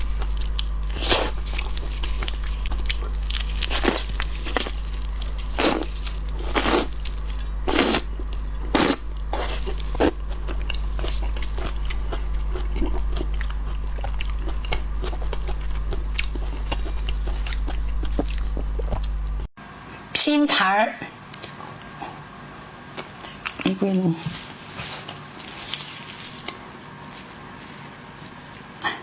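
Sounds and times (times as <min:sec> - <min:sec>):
shellfish crunching: 0:00.0 - 0:19.4.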